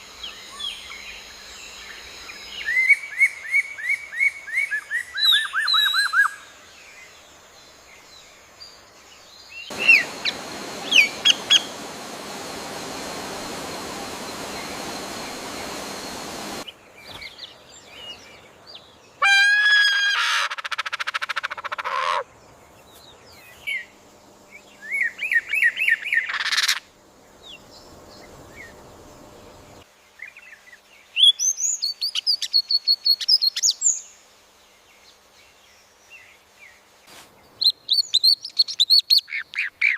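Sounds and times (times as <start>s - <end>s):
birds chirping and trilling: 4.0s - 19.3s
steady hiss: 6.6s - 16.7s.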